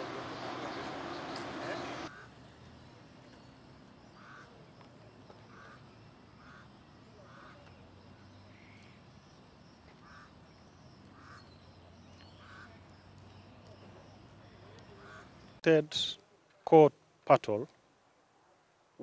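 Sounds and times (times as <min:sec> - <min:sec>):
bird calling: 0:00.0 - 0:02.4, 0:04.1 - 0:04.6, 0:05.3 - 0:07.8, 0:09.8 - 0:15.6.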